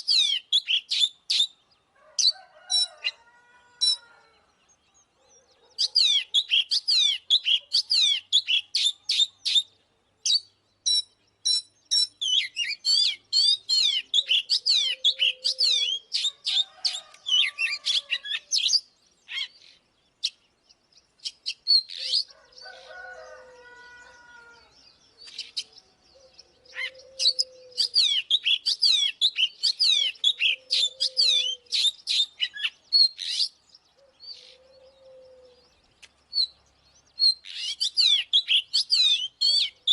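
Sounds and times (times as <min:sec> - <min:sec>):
bird singing rapid high notes: 0:05.8 - 0:16.4.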